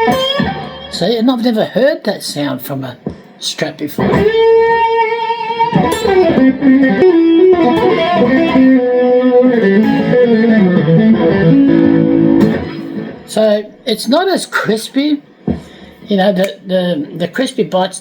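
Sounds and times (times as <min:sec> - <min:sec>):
electric guitar melody: 0:00.0 - 0:01.0, 0:04.0 - 0:13.8.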